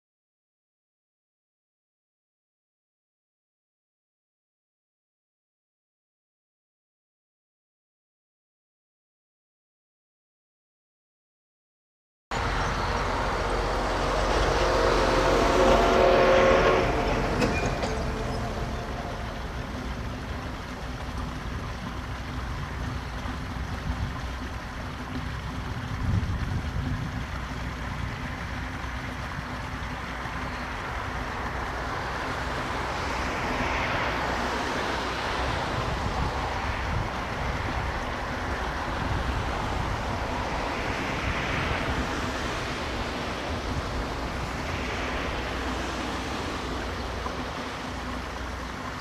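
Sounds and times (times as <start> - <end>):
steam train running: 12.4 - 26.0.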